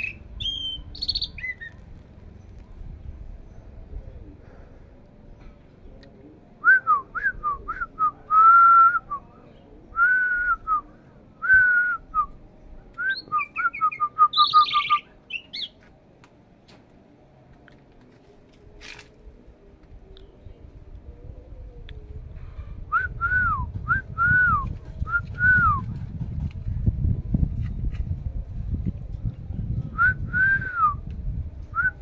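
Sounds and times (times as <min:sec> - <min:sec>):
starling whistling: 0:13.0 - 0:15.7
harsh high bird call: 0:13.2 - 0:15.8.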